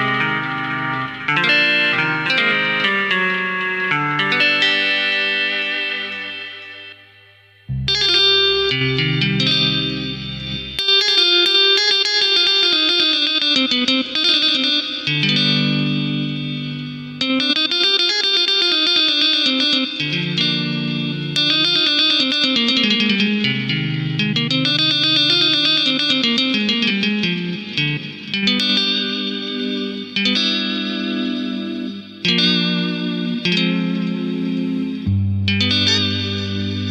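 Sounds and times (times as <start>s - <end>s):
held low keyboard chords: 0.0s - 6.3s, 7.7s - 17.6s
keyboard guitar-like melody: 0.0s - 36.9s.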